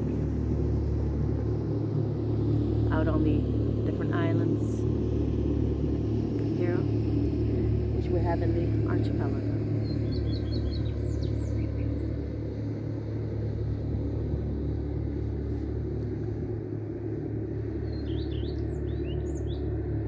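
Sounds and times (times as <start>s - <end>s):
motorboat engine drone: 0.0s - 20.0s
small bird chirping: 9.8s - 11.9s, 17.8s - 19.6s.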